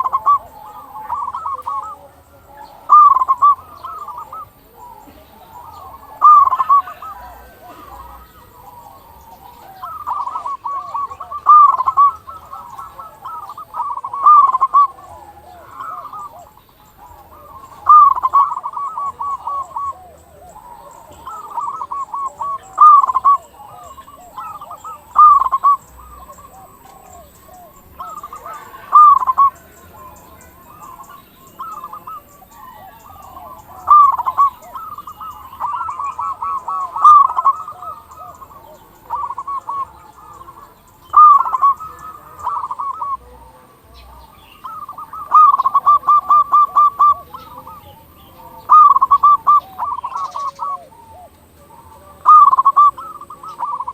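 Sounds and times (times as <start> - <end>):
doves cooing: 0.0 - 53.9.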